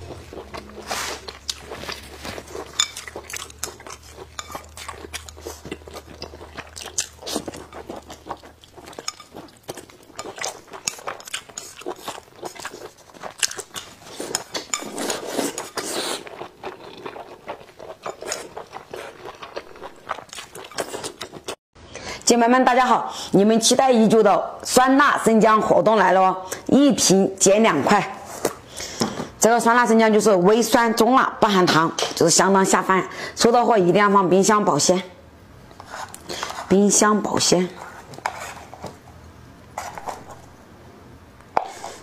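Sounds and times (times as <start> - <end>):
person chewing wetly: 0.0 - 21.6.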